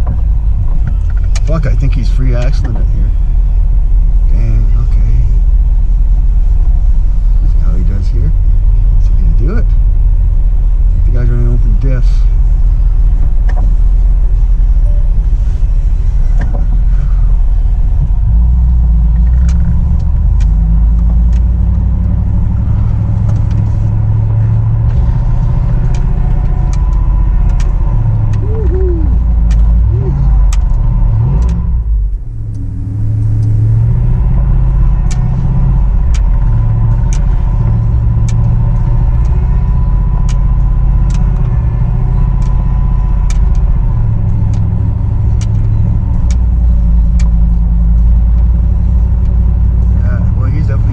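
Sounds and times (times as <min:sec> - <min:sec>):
truck engine rumbling: 0:00.0 - 0:50.9
sharp clicks: 0:25.7 - 0:29.8.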